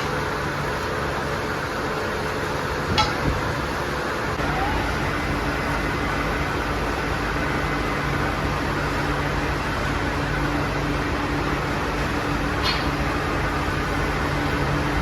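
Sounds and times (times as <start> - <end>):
factory machinery din: 0.0 - 15.0
sharp metallic clank: 12.6 - 13.0.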